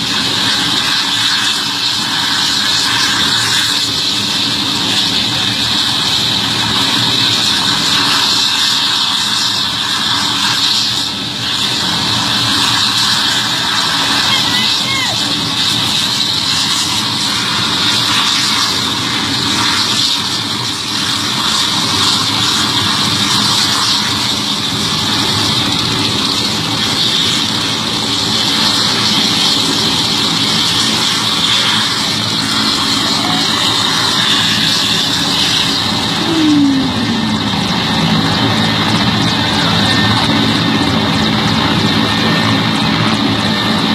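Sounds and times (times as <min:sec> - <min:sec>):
helicopter rotor beat: 0:00.0 - 0:43.9
helicopter turbine whine: 0:00.0 - 0:43.9
falling tone: 0:35.8 - 0:39.9.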